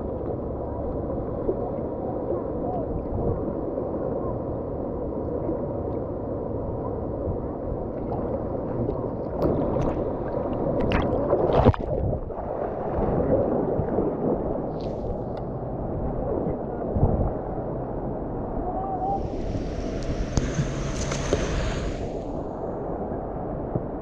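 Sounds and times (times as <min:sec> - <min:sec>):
whitewater rushing: 0:19.1 - 0:22.5.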